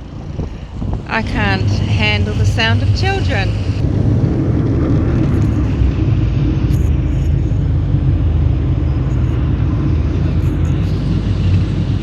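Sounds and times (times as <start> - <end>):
ferry engine drone: 0.0 - 12.0
wind on microphone: 0.0 - 12.0.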